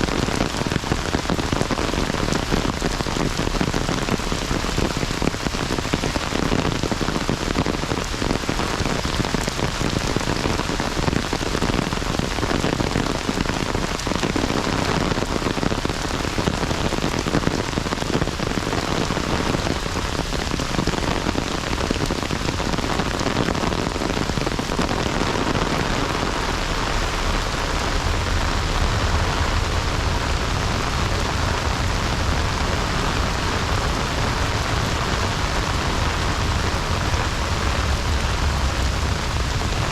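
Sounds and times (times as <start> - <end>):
heavy rain falling: 0.0 - 39.9
low rumble: 26.8 - 39.9.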